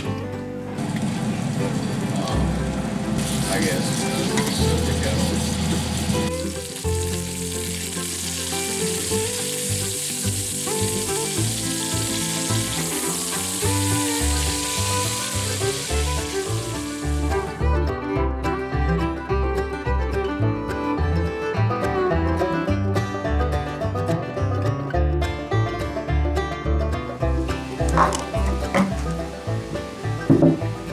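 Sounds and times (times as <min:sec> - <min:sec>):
food sizzling in a pan: 0:00.8 - 0:17.6, 0:27.2 - 0:30.9
background music: 0:02.4 - 0:30.9.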